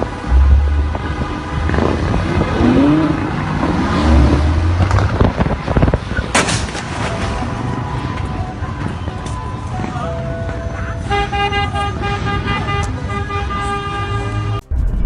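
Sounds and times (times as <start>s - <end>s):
vehicle road noise rumble: 0.0s - 15.0s
sharp loud bang: 0.3s - 3.0s, 6.3s - 6.9s.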